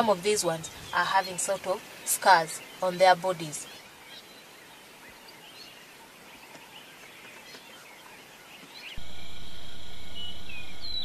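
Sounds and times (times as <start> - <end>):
bird chirps: 6.8 - 11.0
high drone: 9.0 - 11.0
low rumble: 9.0 - 11.0.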